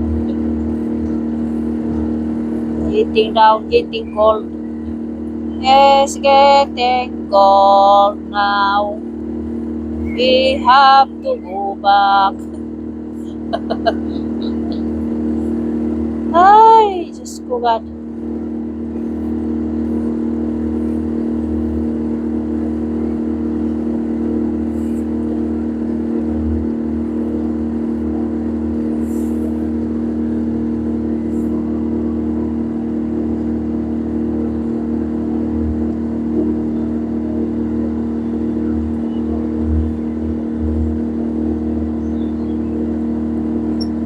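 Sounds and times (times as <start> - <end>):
boat engine droning: 0.0 - 44.0.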